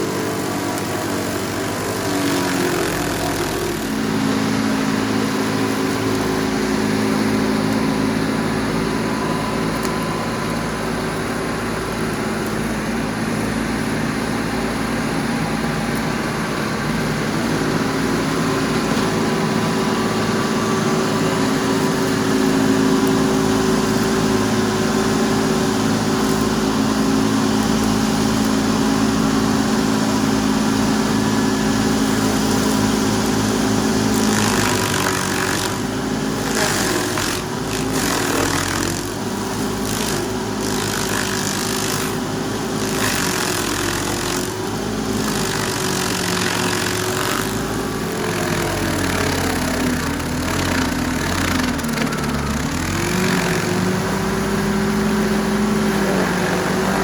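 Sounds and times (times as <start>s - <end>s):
stump grinder engine running: 0.0s - 57.0s.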